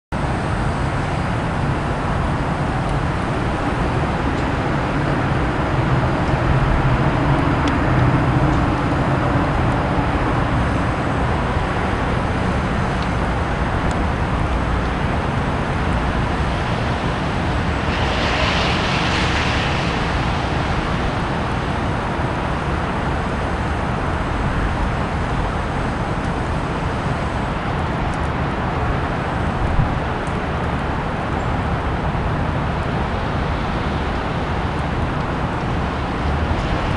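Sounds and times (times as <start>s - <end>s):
outdoor traffic noise: 0.1s - 36.9s
vehicle passing hiss: 14.5s - 27.4s.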